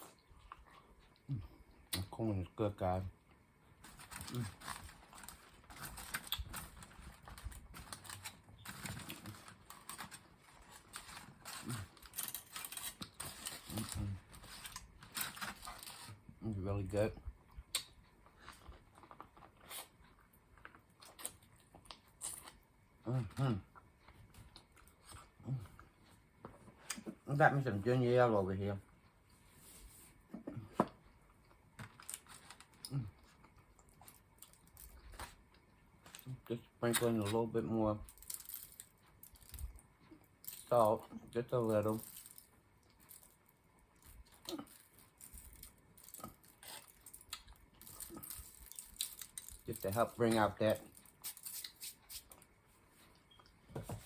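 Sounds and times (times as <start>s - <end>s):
chewing corn on the cob: 4.0s - 16.1s, 31.9s - 51.8s.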